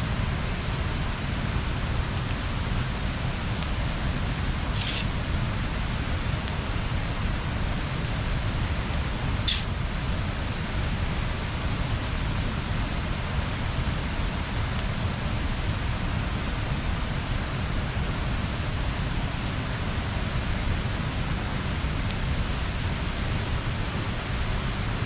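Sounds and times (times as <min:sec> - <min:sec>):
bonfire hissing and rumbling: 0:00.0 - 0:25.0
wood crackle: 0:03.2 - 0:07.6, 0:08.8 - 0:09.8.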